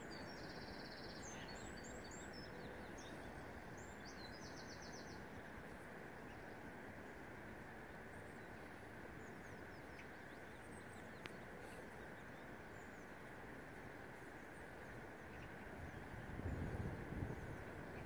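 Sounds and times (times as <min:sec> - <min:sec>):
steady background hiss: 0:00.0 - 0:18.0
birds peeping and chirping: 0:08.0 - 0:18.0.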